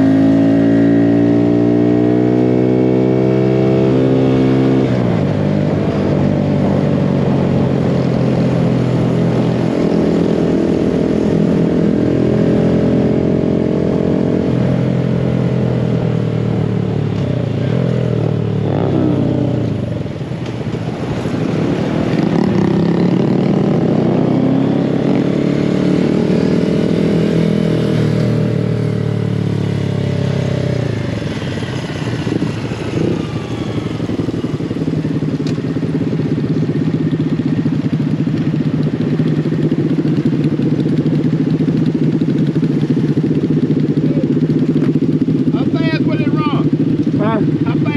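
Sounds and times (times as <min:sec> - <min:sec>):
mini bike engine running: 0:34.0 - 0:47.9.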